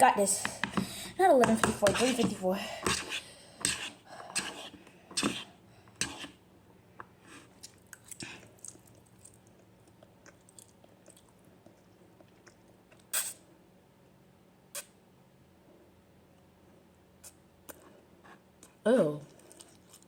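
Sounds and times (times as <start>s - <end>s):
person chewing noodles: 7.4s - 13.1s, 18.6s - 20.0s
wet crackles and ticks: 7.6s - 13.1s.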